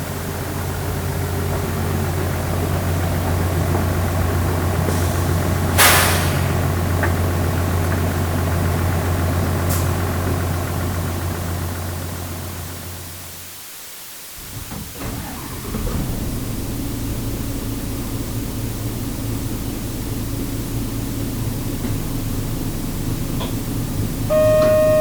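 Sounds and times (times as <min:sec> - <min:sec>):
bus engine idling: 0:00.0 - 0:13.5, 0:14.4 - 0:25.0
short sharp hiss: 0:04.9 - 0:06.6.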